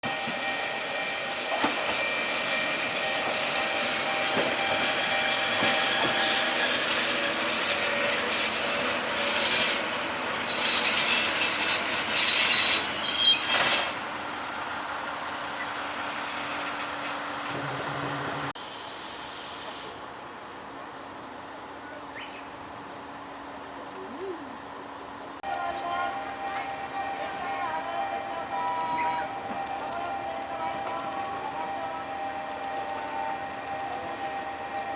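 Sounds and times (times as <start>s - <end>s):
train running on rails: 0.0s - 34.9s
train wheels squealing: 0.2s - 14.1s.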